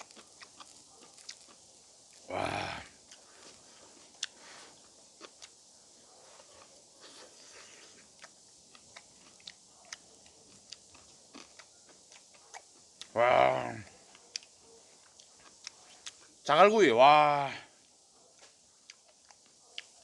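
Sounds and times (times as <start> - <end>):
person chewing close up: 0.0 - 2.3, 2.9 - 5.7, 6.3 - 13.2, 14.0 - 16.3, 18.4 - 20.0
sharp chewing clicks: 0.0 - 2.3, 4.1 - 5.7, 7.5 - 16.4, 17.8 - 20.0.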